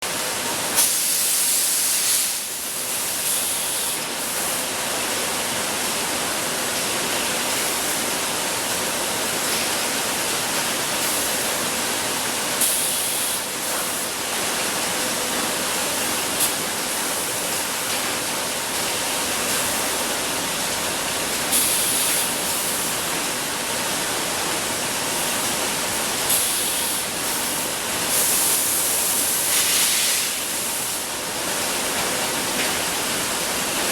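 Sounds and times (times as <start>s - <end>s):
production line machinery din: 0.4s - 33.9s
short bursts of hissing: 28.1s - 31.0s.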